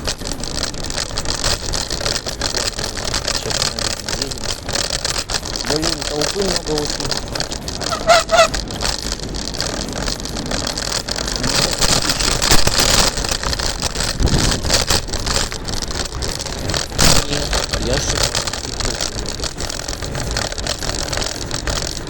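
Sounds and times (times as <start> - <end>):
road and tyre noise: 0.0 - 22.0
small knocks and rattles: 0.0 - 22.0
wind buffeting microphone: 0.0 - 22.0
high squeak: 7.8 - 8.6.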